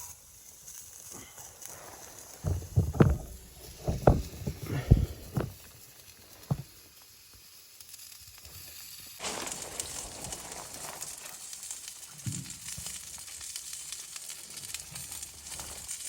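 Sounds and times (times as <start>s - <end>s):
steady hiss with crackle: 0.0s - 16.0s
dull thuds and knocks: 2.4s - 5.7s, 6.4s - 6.7s.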